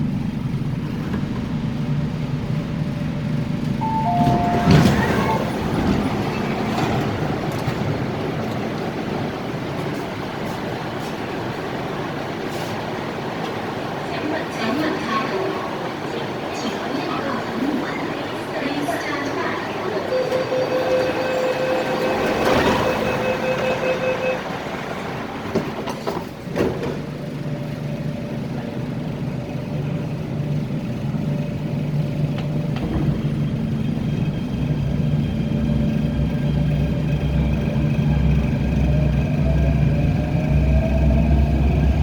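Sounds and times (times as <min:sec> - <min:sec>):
train running hum and rumble: 0:00.0 - 0:42.0
steady electronic tone: 0:03.8 - 0:05.9.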